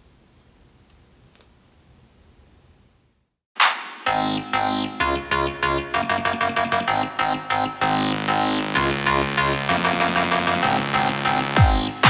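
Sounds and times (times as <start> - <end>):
faint room hiss: 0.0 - 3.4.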